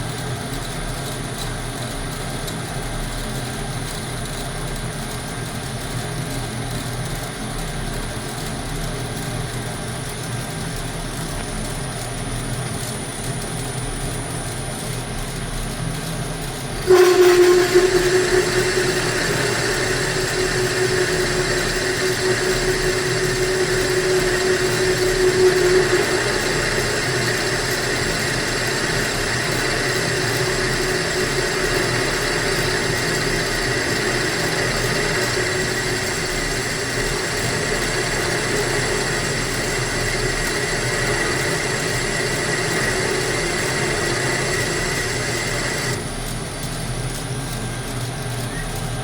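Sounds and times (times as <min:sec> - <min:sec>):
lathe motor humming and whining: 0:16.5 - 0:46.5.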